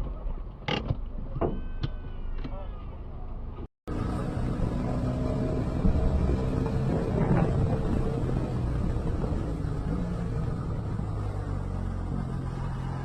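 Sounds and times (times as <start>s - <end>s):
car engine hum and road noise: 0.0s - 13.0s.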